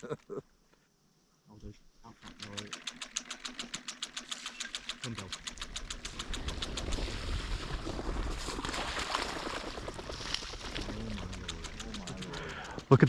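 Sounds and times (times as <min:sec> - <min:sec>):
rapid mechanical ticking: 0:02.1 - 0:08.4, 0:09.8 - 0:13.0.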